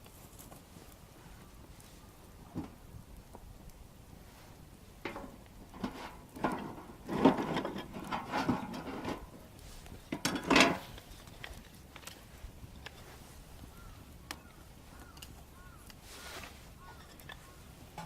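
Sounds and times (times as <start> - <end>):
handling knocks and scrapes: 4.4 - 13.4.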